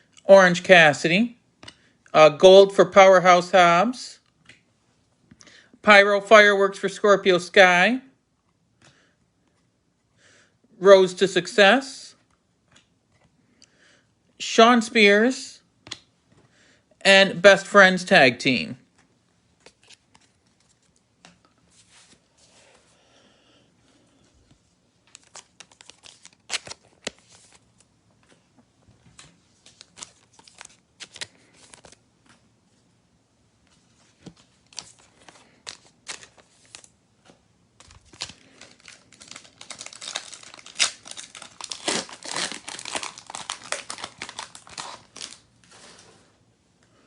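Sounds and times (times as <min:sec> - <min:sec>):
wrapper crinkling and tearing: 0:25.1 - 0:27.7, 0:29.7 - 0:32.0, 0:34.6 - 0:36.9, 0:37.8 - 0:46.0.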